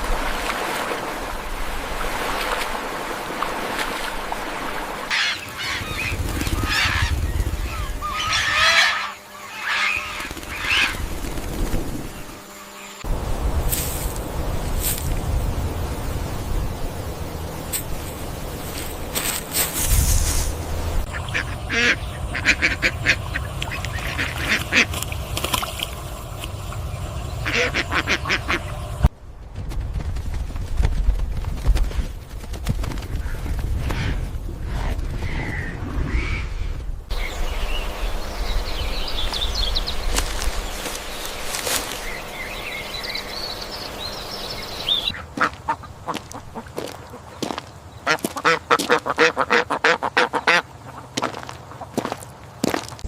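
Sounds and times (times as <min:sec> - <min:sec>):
duck quacking: 0:07.8 - 0:11.0, 0:21.1 - 0:25.0, 0:27.4 - 0:28.8, 0:45.0 - 0:47.2, 0:48.0 - 0:51.3
outdoor hiss: 0:12.2 - 0:29.1, 0:37.1 - 0:45.2.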